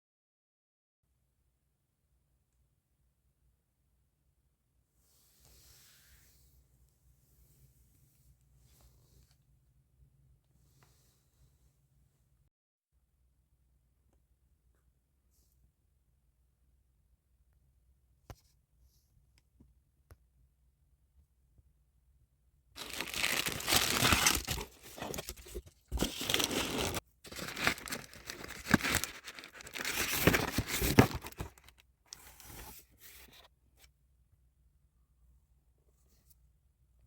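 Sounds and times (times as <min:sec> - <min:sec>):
packaging torn and crinkled: 0:22.8 - 0:31.8.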